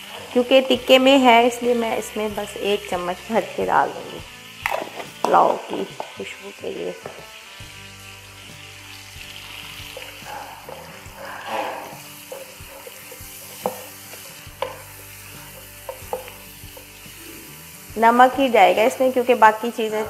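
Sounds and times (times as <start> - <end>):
food sizzling in oil: 0.0 - 20.0
spatula stirring: 9.6 - 19.6.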